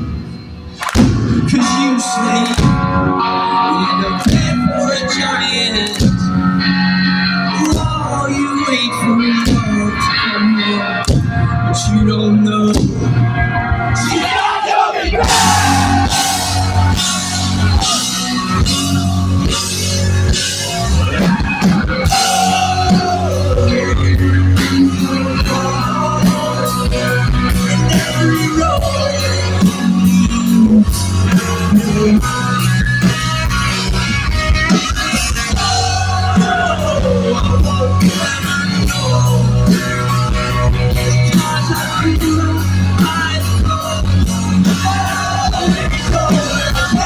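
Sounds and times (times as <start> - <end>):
electric guitars: 0.0 - 14.4, 15.0 - 47.0
rock band playing: 0.0 - 47.0
drum hits: 15.1 - 19.0
bass notes: 15.1 - 47.0
guitar sliding down in pitch: 15.2 - 27.2.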